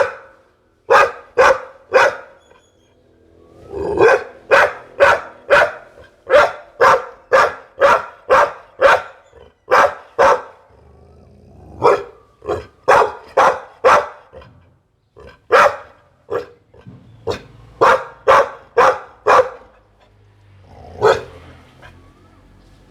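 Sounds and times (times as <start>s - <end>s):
dog barking: 0.0s - 2.5s, 3.8s - 10.7s, 11.7s - 14.6s, 15.2s - 20.0s, 20.9s - 22.0s.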